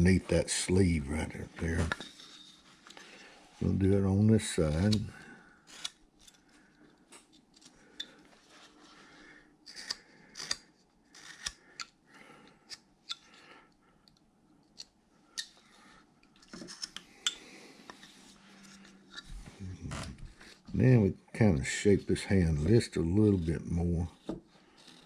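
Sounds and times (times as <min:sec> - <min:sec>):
carving tool cutting wood: 0:09.8 - 0:11.6.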